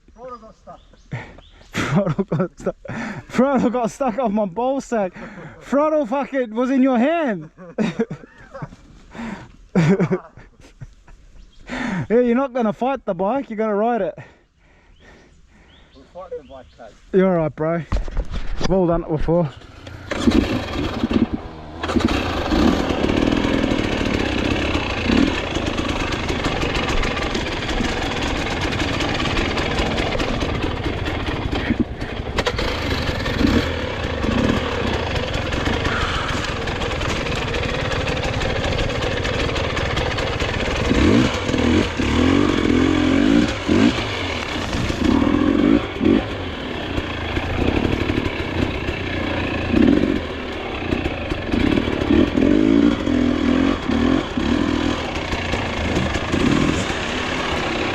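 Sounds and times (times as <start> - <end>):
dirt bike engine running: 18.0 - 57.9.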